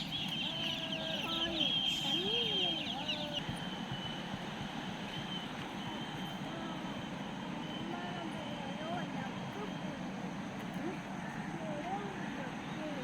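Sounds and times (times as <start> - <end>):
ducks calling: 0.0 - 3.6
rapid high-pitched chatter: 0.0 - 3.6.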